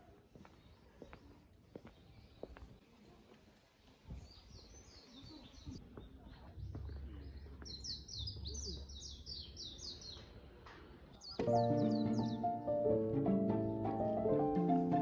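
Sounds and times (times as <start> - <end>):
songbird chirping: 4.1 - 15.0.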